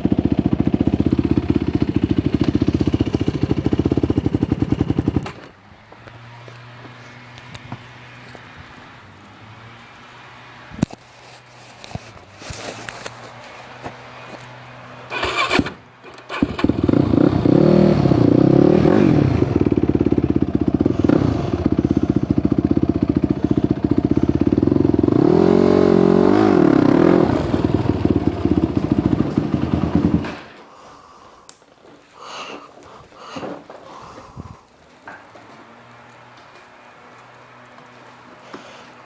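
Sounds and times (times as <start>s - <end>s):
quad bike engine revving: 0.0s - 10.9s, 11.8s - 30.6s.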